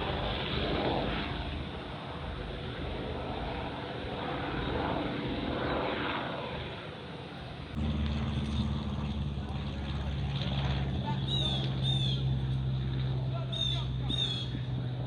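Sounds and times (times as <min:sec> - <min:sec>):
airplane flying over: 0:00.0 - 0:15.0
low hum: 0:07.7 - 0:15.0.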